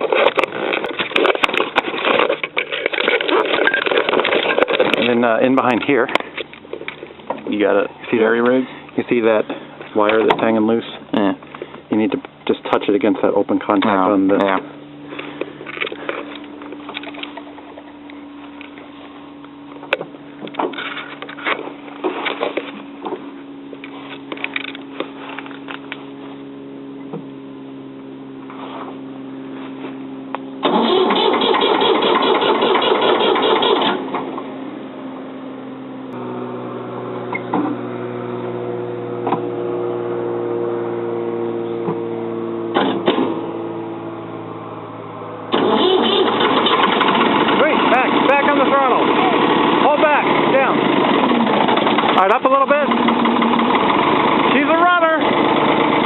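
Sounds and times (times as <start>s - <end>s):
diesel engine cranking roughly: 0.0s - 19.0s, 30.6s - 34.5s, 36.1s - 56.0s
steady hum: 0.0s - 31.4s, 32.6s - 56.0s
diesel engine running: 0.0s - 56.0s.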